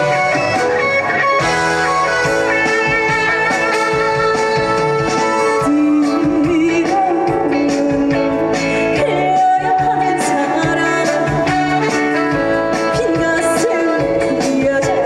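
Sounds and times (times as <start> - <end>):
band playing over sound system: 0.0 - 15.0
woman singing: 5.4 - 15.0.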